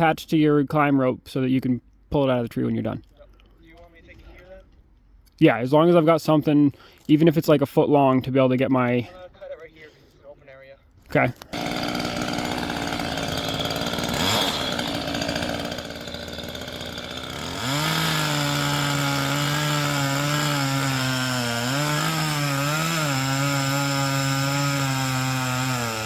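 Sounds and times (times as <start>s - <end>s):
battery chainsaw cutting wood: 11.4s - 26.0s.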